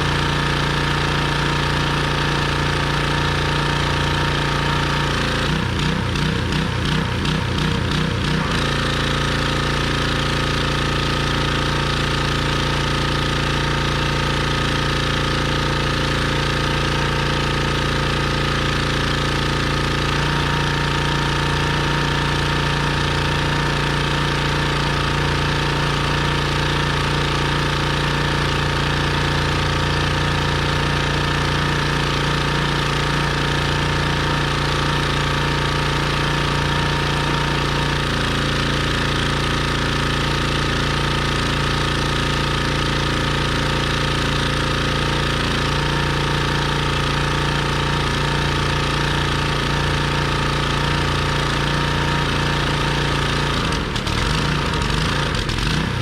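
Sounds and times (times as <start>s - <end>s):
pressure washer engine spraying: 0.0s - 56.0s.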